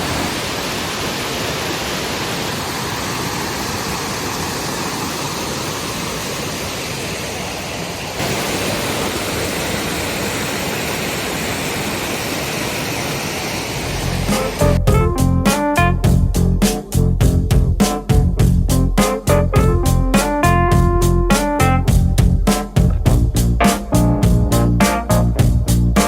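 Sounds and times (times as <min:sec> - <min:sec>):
waterfall rushing: 0:00.0 - 0:14.8.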